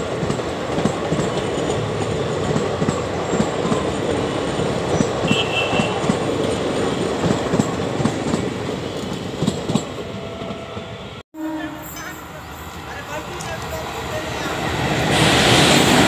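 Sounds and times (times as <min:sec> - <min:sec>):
train wheels clickety-clack: 0:00.0 - 0:10.6.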